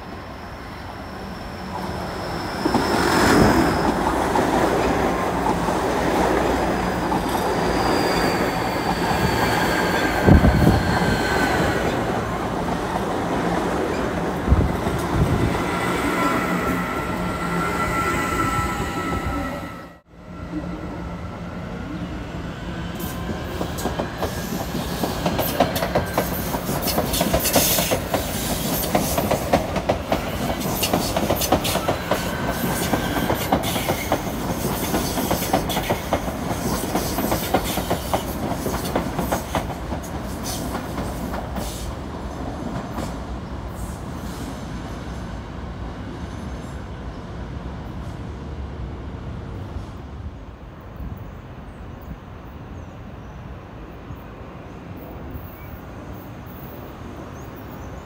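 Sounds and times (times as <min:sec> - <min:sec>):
train wheels clacking over rail joints: 0:23.6 - 0:41.8.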